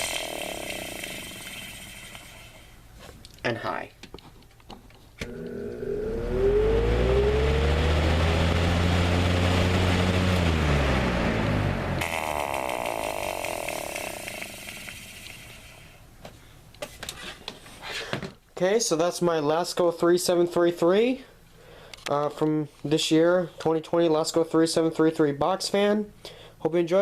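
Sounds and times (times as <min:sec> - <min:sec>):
fan motor hum: 0:00.0 - 0:02.9, 0:05.2 - 0:16.3.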